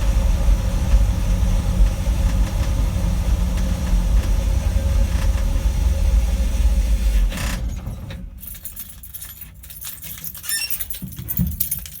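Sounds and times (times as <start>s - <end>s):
car engine idling: 0.0s - 7.3s
metallic jingling and clinking: 8.4s - 12.0s.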